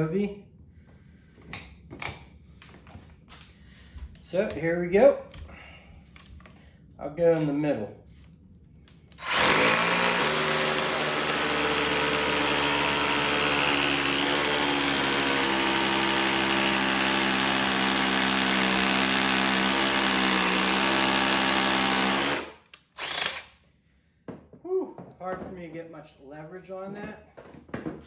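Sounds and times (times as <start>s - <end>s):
hammer drill drilling into brick: 9.2s - 23.5s.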